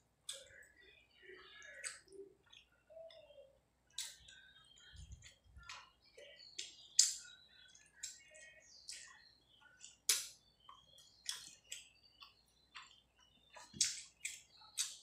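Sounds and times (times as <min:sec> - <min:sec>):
close-miked chewing: 0:03.9 - 0:15.0.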